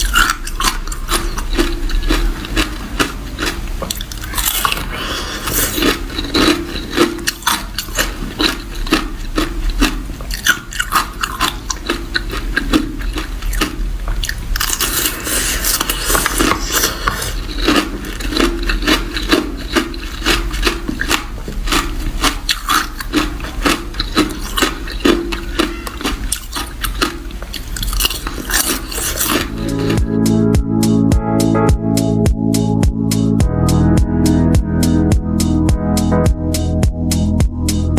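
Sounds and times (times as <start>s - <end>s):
person chewing ice: 0.0s - 30.3s.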